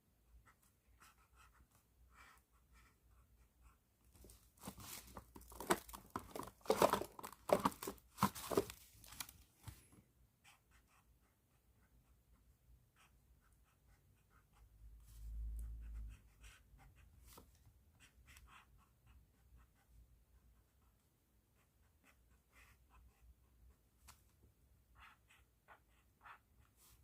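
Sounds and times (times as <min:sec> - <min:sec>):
plastic bag crinkling: 0:04.6 - 0:09.4.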